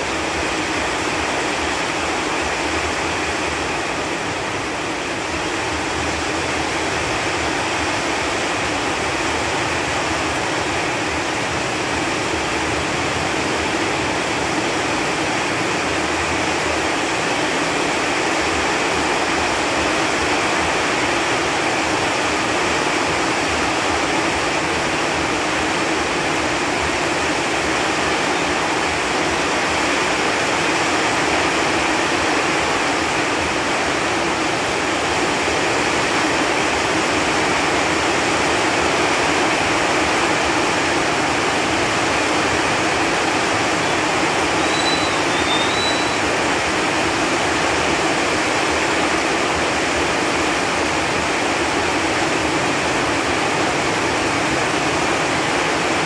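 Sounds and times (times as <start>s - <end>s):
rain falling on leaves: 0.0s - 56.0s
faint brief chirp: 44.6s - 46.2s.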